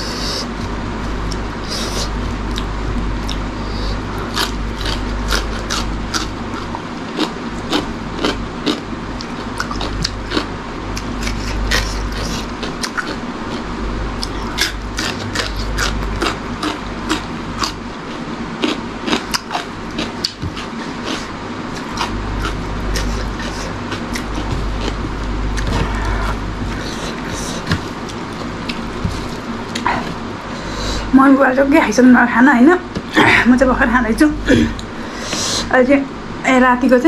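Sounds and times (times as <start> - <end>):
low hum: 0.0 - 37.0
crunching cucumber slices: 4.2 - 29.8.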